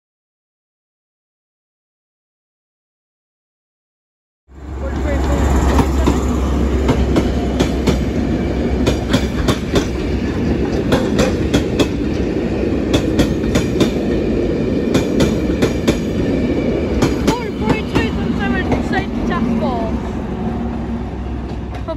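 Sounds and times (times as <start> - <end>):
train rail rumble: 4.5 - 21.9
wheels clicking over rail joints: 4.6 - 14.2.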